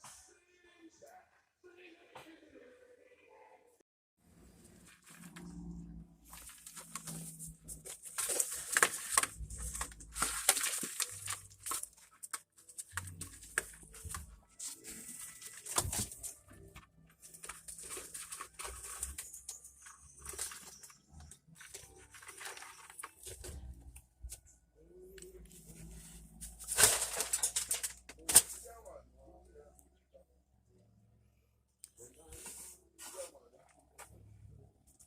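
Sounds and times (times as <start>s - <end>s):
rustling and scraping of materials: 4.4s - 28.9s, 31.9s - 35.0s.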